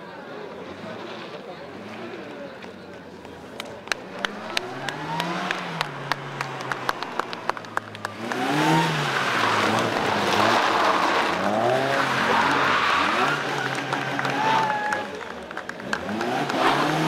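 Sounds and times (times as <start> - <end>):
car engine revving: 3.2 - 17.0.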